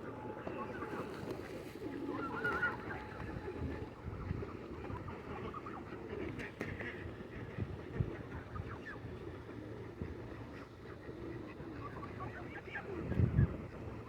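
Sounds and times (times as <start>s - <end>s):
waterfowl calling: 0.0s - 6.2s.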